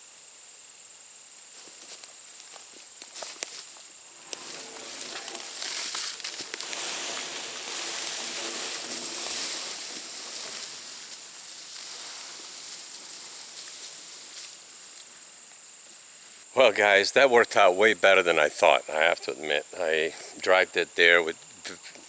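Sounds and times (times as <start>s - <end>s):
log dragged across dry leaves: 1.6s - 15.3s.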